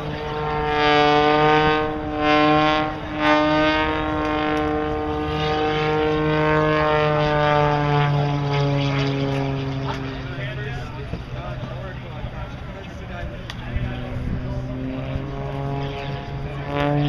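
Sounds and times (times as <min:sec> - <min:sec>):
propeller airplane engine droning: 0:00.0 - 0:17.0.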